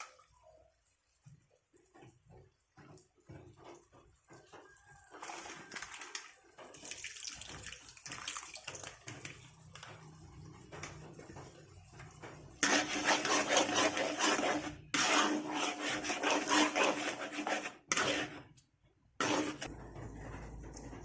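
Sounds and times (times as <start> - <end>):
utensil scraping a pan: 12.2 - 21.0.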